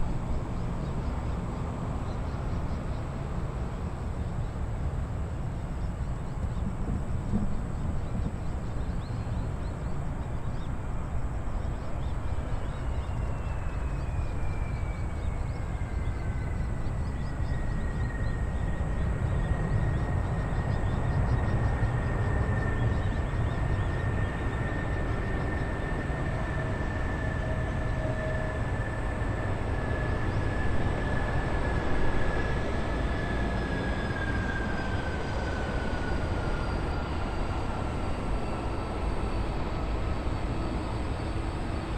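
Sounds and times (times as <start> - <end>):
jet engines rumbling and whining: 0.0 - 41.9.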